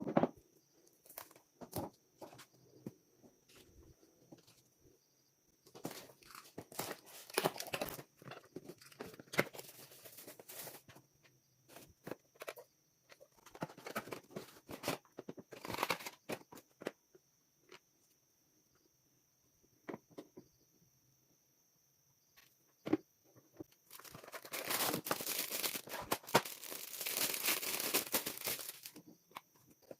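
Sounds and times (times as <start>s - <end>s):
packaging crinkling and tearing: 5.8s - 8.1s, 15.6s - 16.3s, 23.9s - 29.0s.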